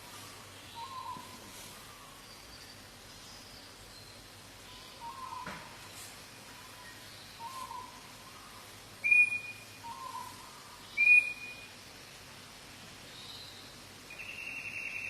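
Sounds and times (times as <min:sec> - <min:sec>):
bird whistling call: 0:09.0 - 0:11.7.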